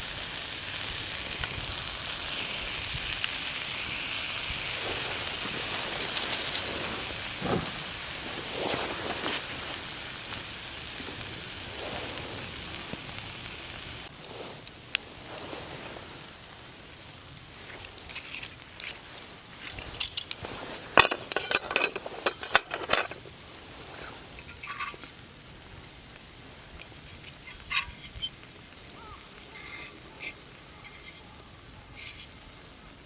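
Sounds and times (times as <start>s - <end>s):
metal cookware clinking and scraping: 19.6s - 23.3s, 24.4s - 25.1s, 29.6s - 31.2s.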